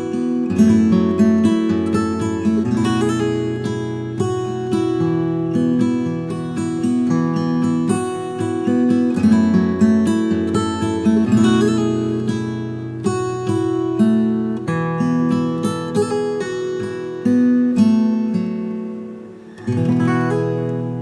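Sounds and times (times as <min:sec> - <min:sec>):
acoustic guitar plucked notes: 0:00.0 - 0:21.0.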